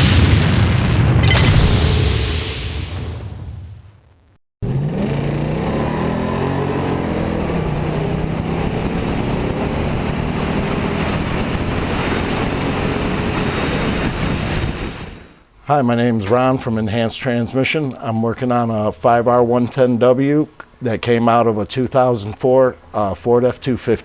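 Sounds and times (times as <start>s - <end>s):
engine running: 4.6s - 15.4s.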